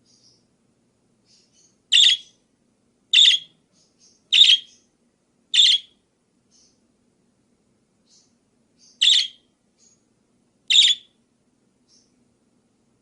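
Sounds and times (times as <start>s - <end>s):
faint high chirps: 1.2s - 2.5s, 3.1s - 6.8s, 8.0s - 10.1s, 10.7s - 11.2s
parakeet harsh calls: 1.9s - 2.4s, 3.1s - 3.5s, 4.3s - 4.8s, 5.6s - 6.0s, 9.0s - 9.4s, 10.7s - 11.1s.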